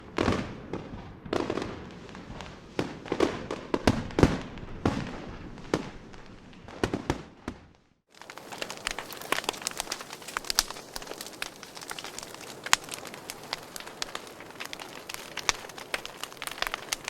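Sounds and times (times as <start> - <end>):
wood fire crackling and popping: 8.0 - 17.0.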